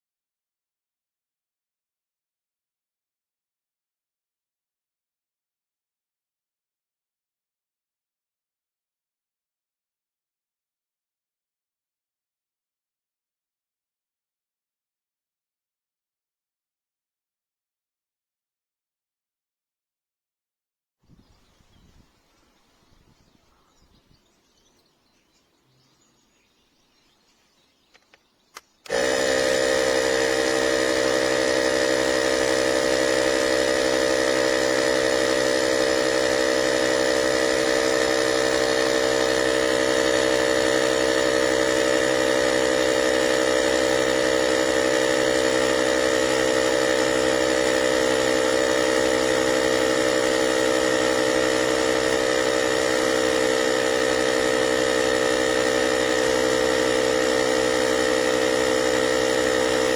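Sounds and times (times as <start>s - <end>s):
air compressor running: 28.0s - 59.9s.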